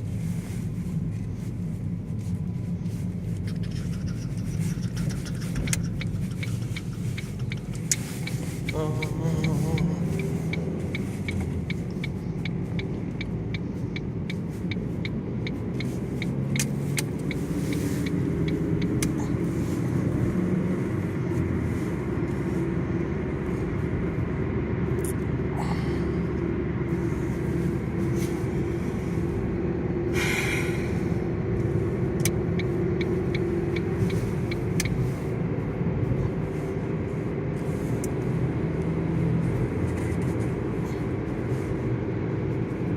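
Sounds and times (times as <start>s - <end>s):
car engine and road rumble: 0.0s - 42.9s
regular ticking: 3.6s - 19.2s, 32.1s - 35.1s.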